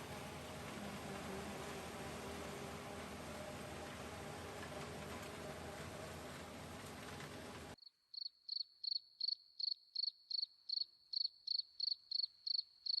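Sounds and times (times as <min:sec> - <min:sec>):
steady rushing noise: 0:00.0 - 0:07.8
cricket chirping: 0:07.8 - 0:13.0.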